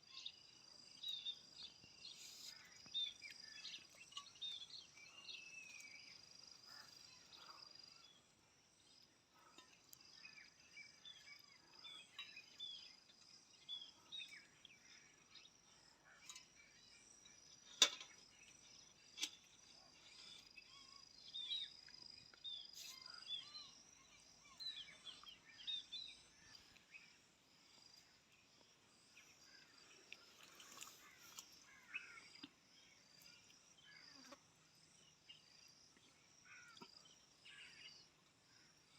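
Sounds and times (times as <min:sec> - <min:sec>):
bird chirps: 0:00.0 - 0:08.3, 0:08.9 - 0:34.4
insect drone: 0:00.1 - 0:38.9.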